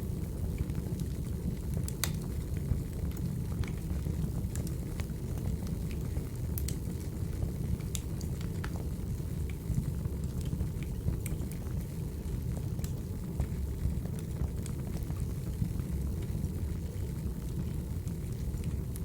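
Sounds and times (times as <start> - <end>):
wood fire crackling: 0.0 - 19.0
sharp pops from fire: 1.9 - 2.3.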